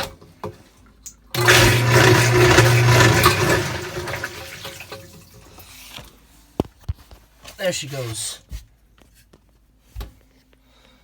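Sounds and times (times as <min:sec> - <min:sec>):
sump pump motor humming: 0:01.3 - 0:05.3.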